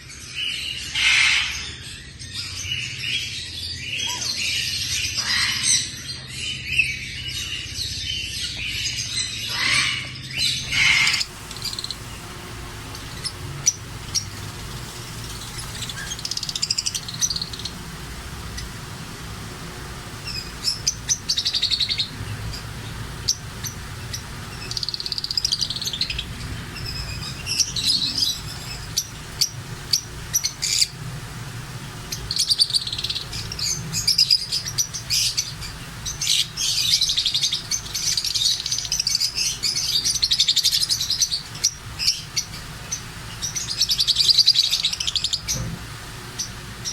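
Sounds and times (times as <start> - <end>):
cage birds chirping: 0.0 - 46.9
low steady hum: 10.3 - 46.9.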